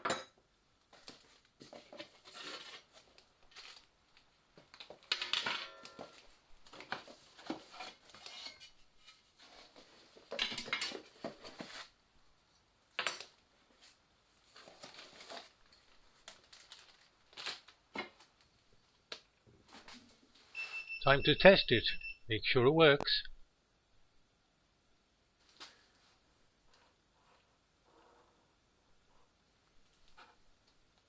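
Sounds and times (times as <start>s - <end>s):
wrapping rustling and tearing: 1.0s - 5.3s, 13.8s - 18.5s.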